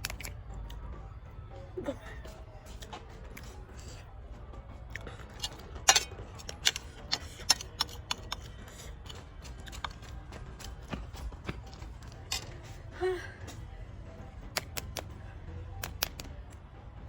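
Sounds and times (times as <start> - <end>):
crunchy eating sounds: 0.0 - 0.8, 1.9 - 4.1, 4.8 - 12.8.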